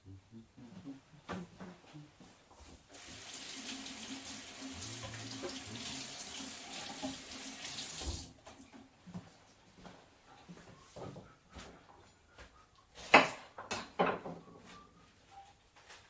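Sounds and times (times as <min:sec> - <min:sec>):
tap running into sink: 0:03.0 - 0:08.3.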